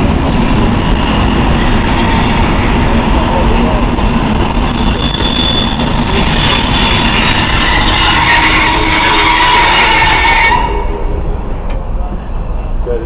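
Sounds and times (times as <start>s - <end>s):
train coaches rumbling: 0.0s - 13.0s
high squeal: 4.5s - 11.2s.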